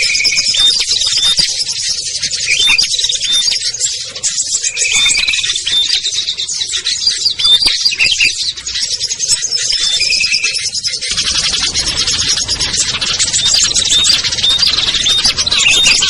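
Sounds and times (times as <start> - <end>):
songbirds chirping chorus: 0.0 - 16.0
short whistled bird notes: 13.3 - 16.0.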